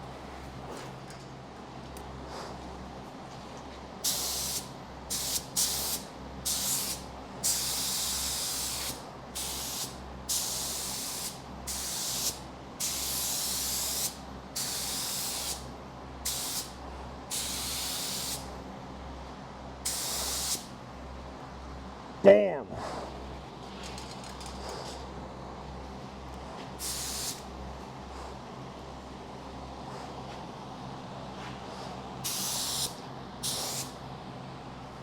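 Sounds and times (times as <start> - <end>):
paint spray gun hissing: 4.0 - 15.7, 16.3 - 16.7, 17.3 - 18.5, 19.9 - 20.7, 26.8 - 27.5, 32.2 - 34.0.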